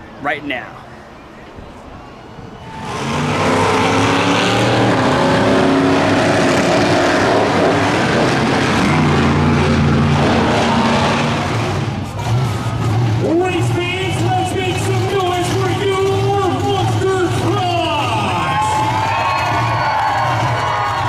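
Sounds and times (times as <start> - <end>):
truck engines at high revs: 2.3 - 21.0.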